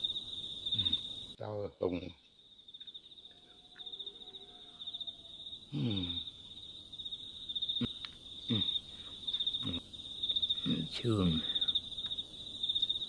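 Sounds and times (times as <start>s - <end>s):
insects chirring: 0.0s - 13.0s
low vocal sound: 0.8s - 1.0s, 5.7s - 6.3s, 7.8s - 8.8s.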